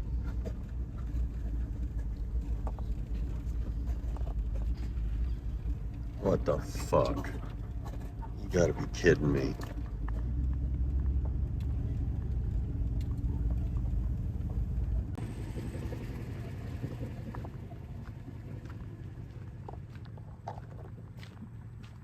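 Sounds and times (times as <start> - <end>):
vehicle low rumble: 0.0 - 22.0.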